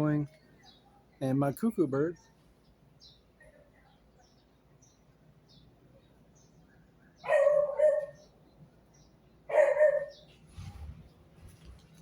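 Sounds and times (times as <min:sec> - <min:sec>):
faint high bird chirps: 0:00.3 - 0:01.3, 0:02.0 - 0:11.2
dog barking: 0:07.2 - 0:08.2, 0:09.5 - 0:10.2.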